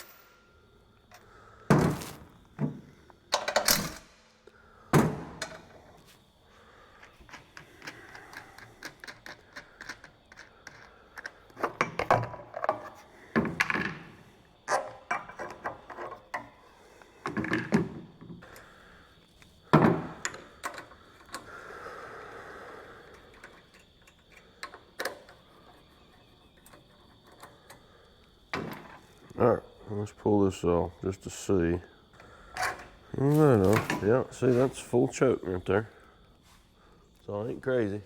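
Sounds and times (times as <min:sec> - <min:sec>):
tools and parts clattering: 0:00.0 - 0:00.4, 0:01.1 - 0:04.4, 0:05.0 - 0:06.2, 0:07.0 - 0:16.6, 0:17.2 - 0:18.5, 0:32.5 - 0:34.9.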